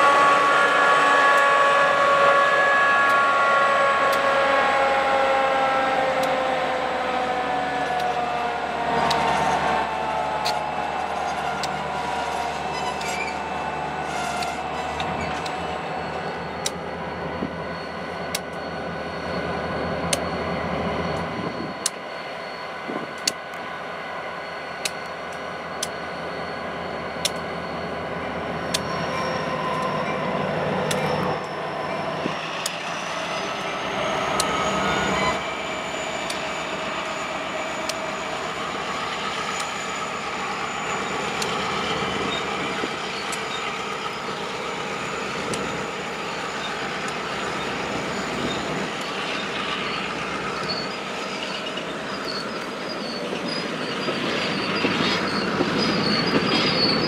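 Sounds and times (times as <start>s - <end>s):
freight train wheels rumbling: 0.0s - 57.0s
locomotive high whine: 0.0s - 57.0s
wheels clicking over rail joints: 32.3s - 33.7s.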